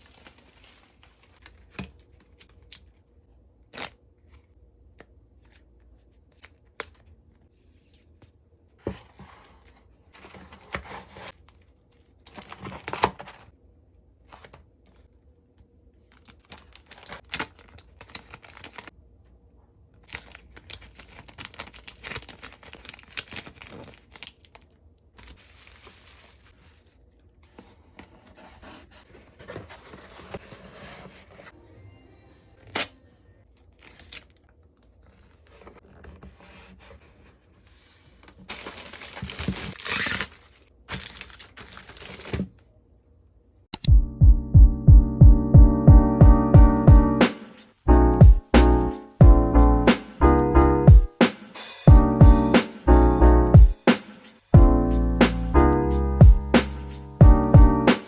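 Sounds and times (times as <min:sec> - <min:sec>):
packaging crinkling and ripping: 0:10.3 - 0:13.5, 0:16.0 - 0:18.9, 0:20.0 - 0:26.6, 0:33.6 - 0:36.0, 0:38.3 - 0:42.6
sharp clicks and taps: 0:43.7 - 0:44.0.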